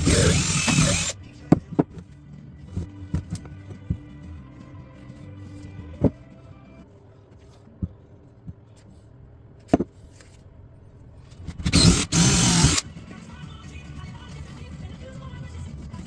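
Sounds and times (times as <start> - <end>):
power tool running: 0.0 - 1.2, 11.6 - 12.8.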